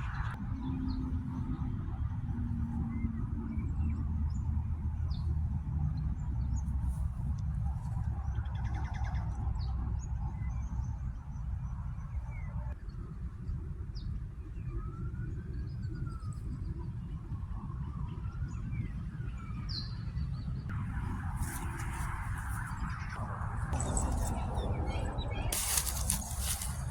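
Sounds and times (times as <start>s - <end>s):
steady low rumble: 20.5s - 26.9s
small birds chirping: 21.4s - 26.9s.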